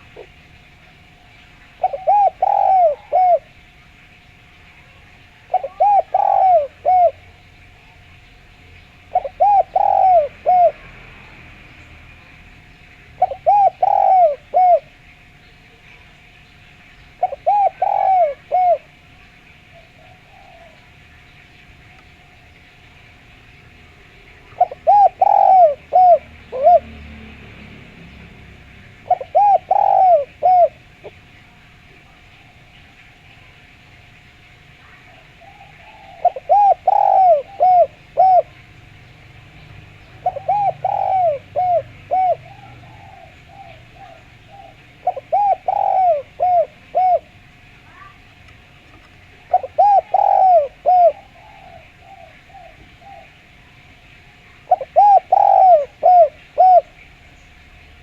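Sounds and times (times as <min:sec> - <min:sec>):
dove cooing: 0:00.0 - 0:11.6, 0:12.2 - 0:16.1, 0:17.1 - 0:22.5, 0:23.9 - 0:33.8, 0:34.7 - 0:57.3
faint steady hiss: 0:00.0 - 0:58.0.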